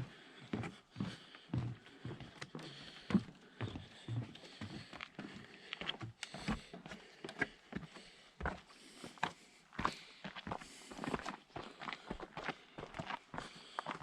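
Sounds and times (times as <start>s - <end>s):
footsteps of people walking: 0.0s - 14.0s.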